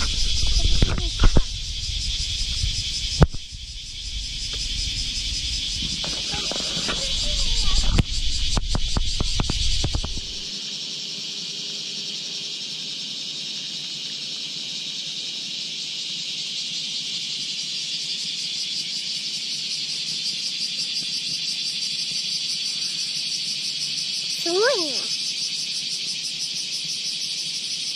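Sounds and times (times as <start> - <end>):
low rumble: 0.0 - 6.2
cicadas droning: 0.0 - 27.9.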